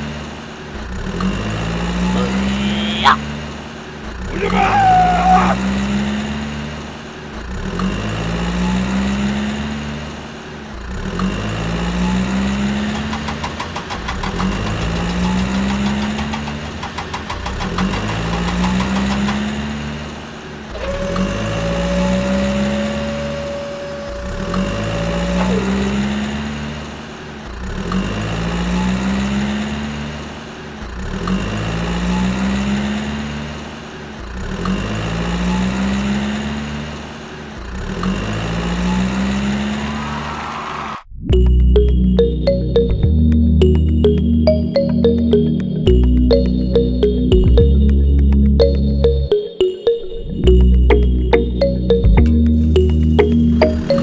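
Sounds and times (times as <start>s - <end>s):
tractor engine revving: 0.0s - 41.1s, 43.6s - 49.5s, 50.4s - 54.0s
steady tone: 41.3s - 54.0s.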